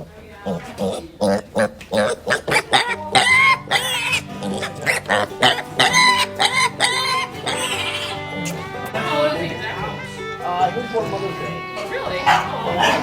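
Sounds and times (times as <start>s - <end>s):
piglets squealing: 0.5s - 10.2s, 11.2s - 13.0s
background music: 2.7s - 13.0s.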